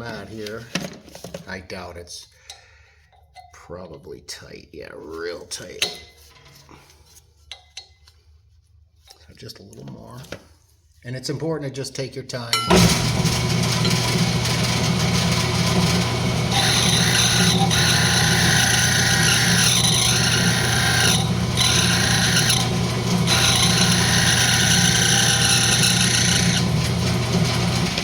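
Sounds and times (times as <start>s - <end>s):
wood lathe humming: 12.7s - 28.0s
tool scraping spinning wood: 12.8s - 28.0s.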